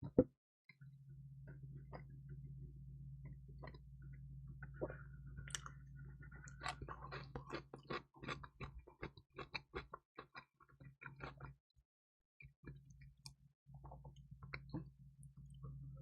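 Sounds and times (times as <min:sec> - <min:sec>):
chewing crispy pizza: 0:04.6 - 0:11.6.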